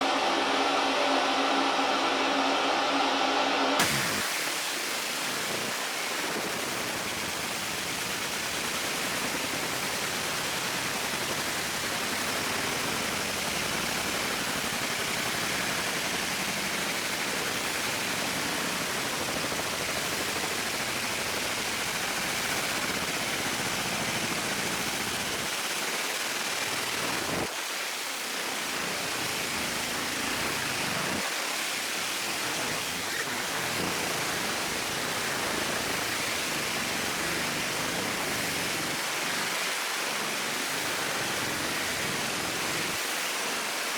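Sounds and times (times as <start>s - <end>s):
laser engraver hiss: 3.8s - 25.5s.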